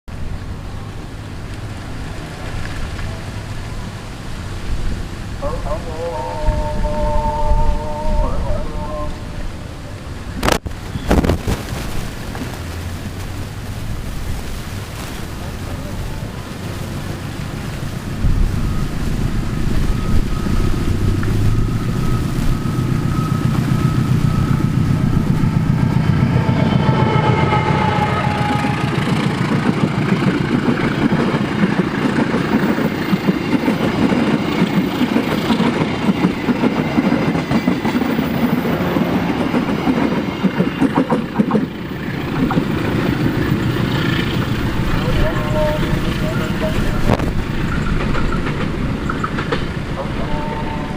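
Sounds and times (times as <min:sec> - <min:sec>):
diesel locomotive rumble: 0:00.1 - 0:50.9
train wheels clattering on rails: 0:16.6 - 0:50.7.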